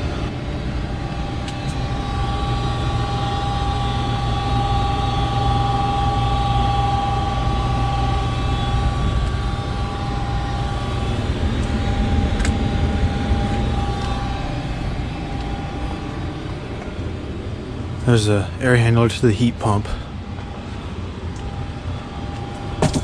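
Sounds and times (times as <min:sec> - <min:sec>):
heat pump whirring: 0:00.0 - 0:23.0.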